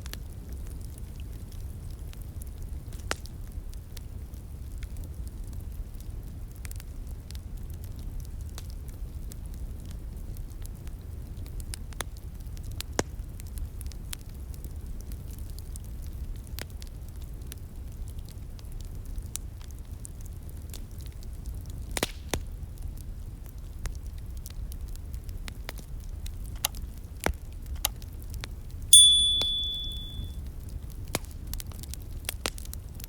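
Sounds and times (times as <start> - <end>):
high ringing tone: 29.0 - 30.3.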